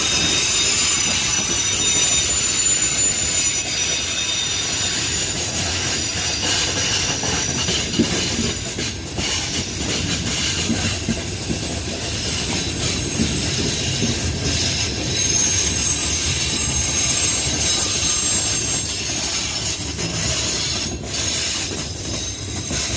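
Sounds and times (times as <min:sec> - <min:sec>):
freight train wagons rumbling: 0:00.0 - 0:22.9
rail clatter: 0:00.0 - 0:22.9
train wheel squeal: 0:00.0 - 0:22.9.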